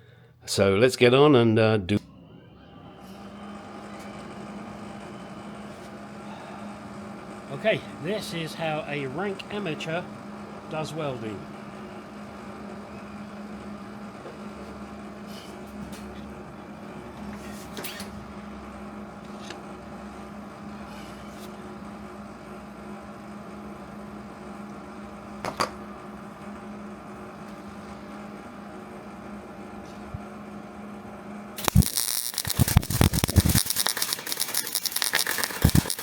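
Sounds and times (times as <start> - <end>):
welder hum: 2.0 - 14.1, 31.6 - 36.0.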